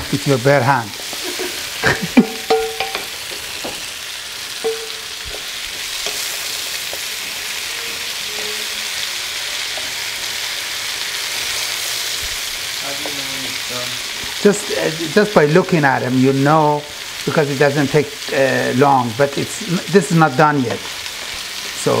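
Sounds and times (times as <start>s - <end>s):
zucchini sizzling in a pan: 0.0s - 22.0s
wooden spoon scraping a pan: 4.6s - 10.4s.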